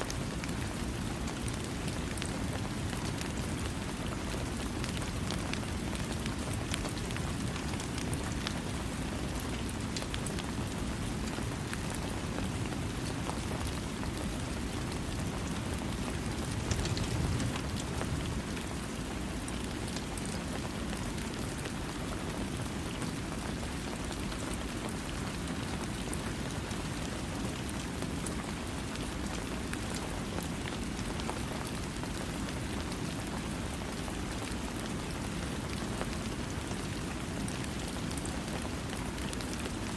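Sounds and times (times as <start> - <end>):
raindrops ticking: 13.6 - 18.8.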